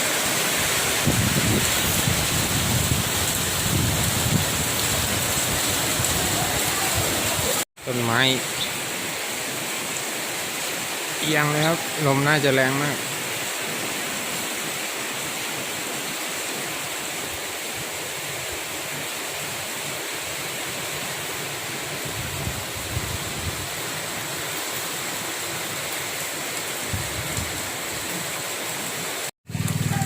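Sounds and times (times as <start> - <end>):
storm rain hissing: 0.0 - 29.7
wind: 0.0 - 30.0
wind gusts buffeting microphone: 0.6 - 7.6, 22.0 - 23.7.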